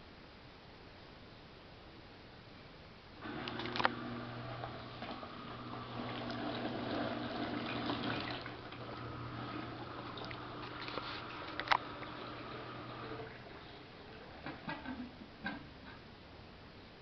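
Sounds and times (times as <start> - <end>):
washing machine running: 3.2 - 16.0.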